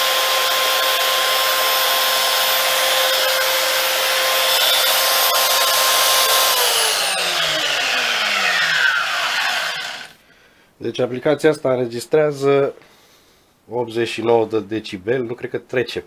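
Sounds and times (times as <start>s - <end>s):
electric motor whining: 0.0s - 10.2s.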